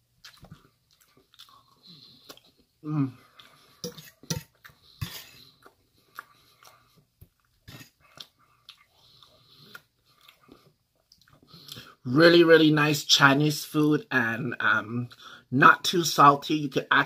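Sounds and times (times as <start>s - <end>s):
person chewing food: 0.0s - 12.0s
short vocal sound: 2.8s - 3.2s.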